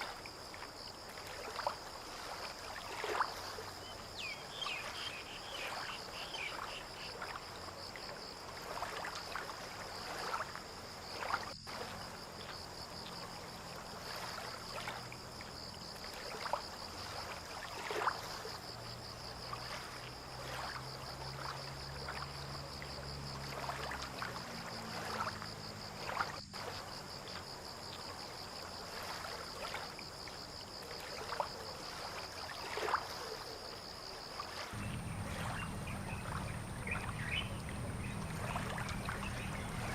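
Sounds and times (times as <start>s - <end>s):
insect trill: 0.0s - 39.9s
water lapping: 0.0s - 39.9s
low engine hum: 34.7s - 39.9s.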